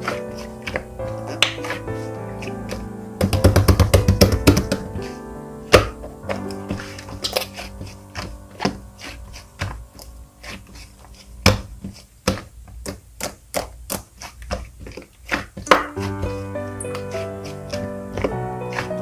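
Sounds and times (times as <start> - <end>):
soft piano music: 0.0 - 11.8, 15.6 - 19.0.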